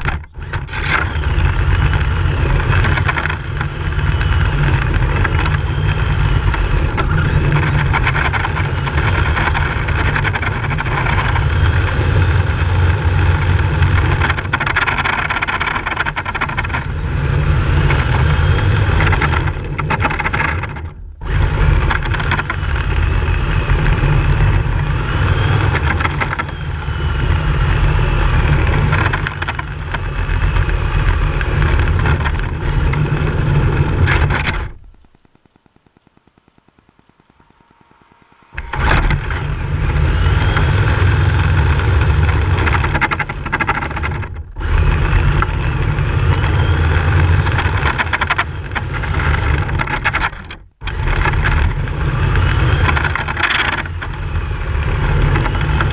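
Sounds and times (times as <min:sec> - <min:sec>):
loud rumble: 0:00.0 - 0:35.2, 0:38.3 - 0:55.9
rc car motor whine: 0:00.0 - 0:35.4, 0:36.4 - 0:55.9.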